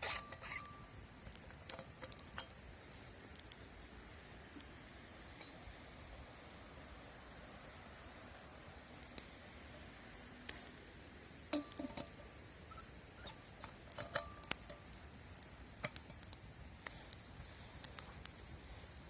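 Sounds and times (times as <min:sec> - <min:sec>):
faint steady hiss: 0:00.0 - 0:19.0
light clicks and taps: 0:12.8 - 0:19.0.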